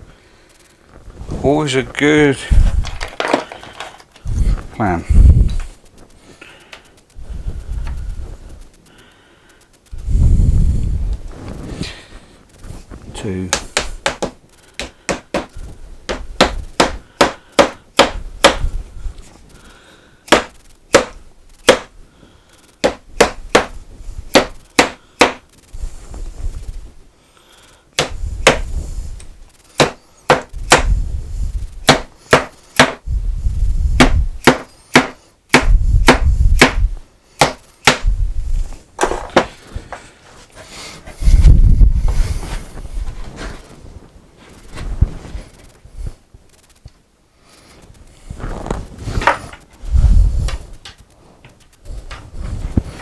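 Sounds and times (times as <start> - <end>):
hammer taps and knocks: 13.5 - 18.7, 22.8 - 25.4, 29.8 - 30.9, 31.8 - 33.0.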